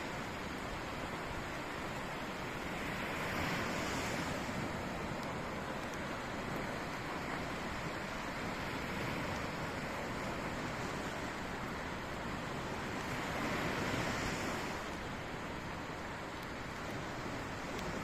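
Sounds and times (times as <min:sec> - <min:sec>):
sea surf washing on shore: 0:00.0 - 0:18.0.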